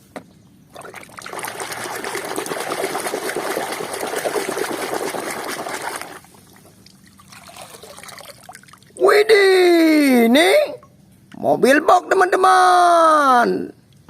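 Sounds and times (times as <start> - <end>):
water running and splattering: 0.8 - 9.0.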